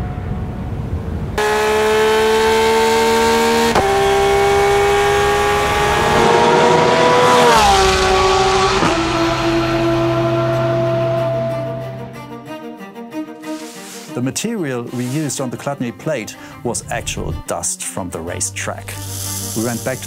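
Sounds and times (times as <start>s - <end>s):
racing car engine revving: 1.4s - 12.3s.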